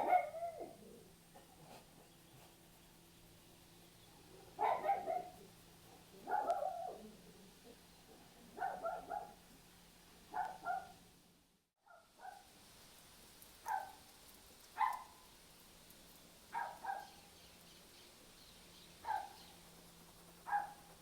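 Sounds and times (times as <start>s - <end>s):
dog barking: 0.0s - 0.8s, 4.3s - 5.5s, 6.2s - 7.2s, 8.6s - 9.4s, 10.3s - 11.0s, 11.8s - 12.5s, 13.6s - 14.0s, 14.8s - 15.1s, 16.5s - 17.2s, 19.0s - 19.4s, 20.4s - 20.8s.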